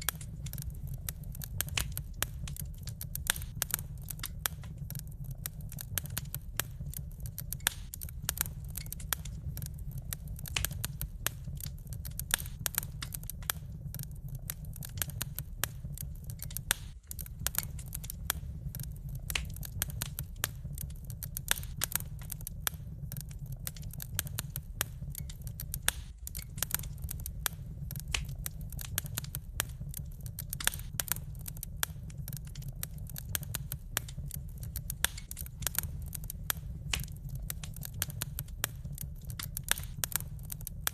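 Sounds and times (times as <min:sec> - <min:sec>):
low rumble: 0:00.0 - 0:40.9
wood fire crackling: 0:00.0 - 0:40.9.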